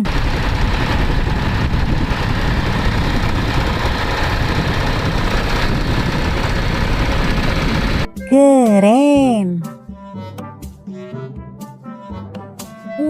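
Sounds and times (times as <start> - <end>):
tractor engine rumbling: 0.0 - 8.1.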